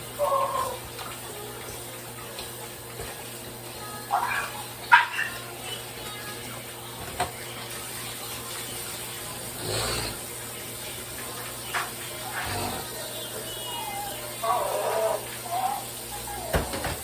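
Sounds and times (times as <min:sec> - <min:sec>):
tap running into sink: 0:07.0 - 0:07.6, 0:16.5 - 0:17.0.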